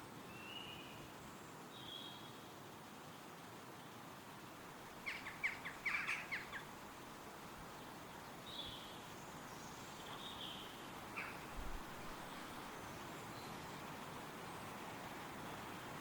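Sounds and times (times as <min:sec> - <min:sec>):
songbird chirping: 0:00.0 - 0:03.2, 0:03.8 - 0:16.0
wind in trees: 0:00.0 - 0:16.0.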